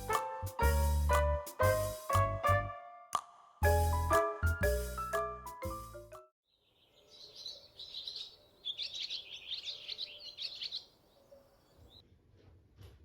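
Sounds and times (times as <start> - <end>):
small birds chirping: 6.5 - 12.0.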